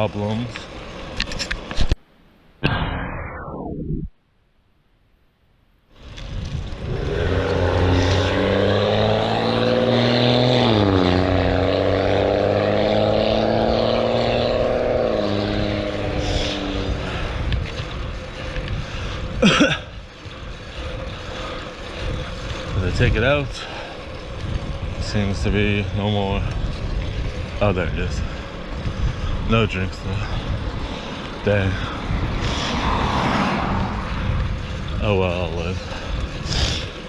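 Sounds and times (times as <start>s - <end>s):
sharp squeal sliding downward: 2.6s - 4.1s.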